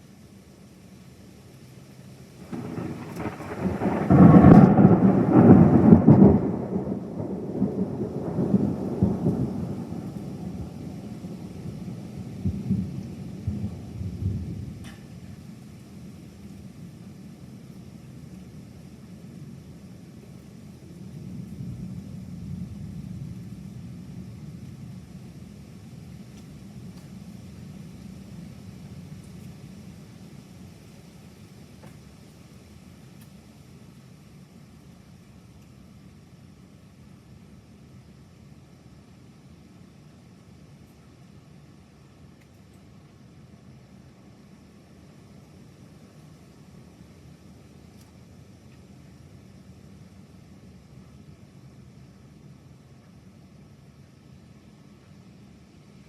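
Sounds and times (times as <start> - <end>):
thunder rumbling: 2.4 - 15.3.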